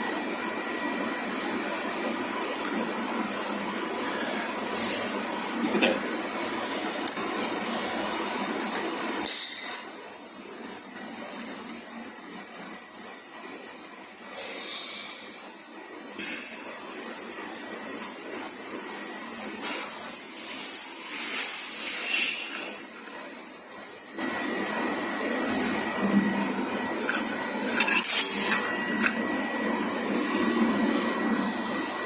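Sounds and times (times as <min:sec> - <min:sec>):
laser welder high hiss: 0:09.2 - 0:24.2, 0:25.2 - 0:30.9.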